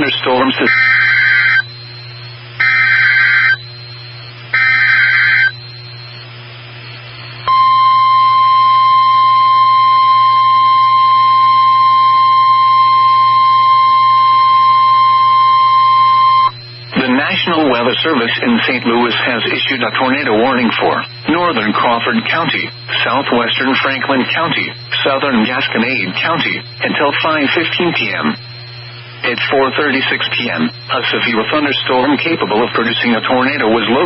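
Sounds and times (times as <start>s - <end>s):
warbling digital data bursts: 0.0s - 6.2s, 16.5s - 34.0s
steady warning alarm tone: 0.0s - 34.0s.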